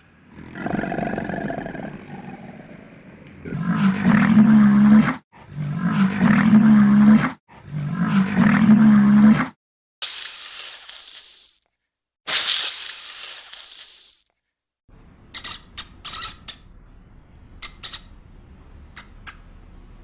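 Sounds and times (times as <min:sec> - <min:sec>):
hissing noises: 0:10.0 - 0:11.6, 0:12.3 - 0:14.3.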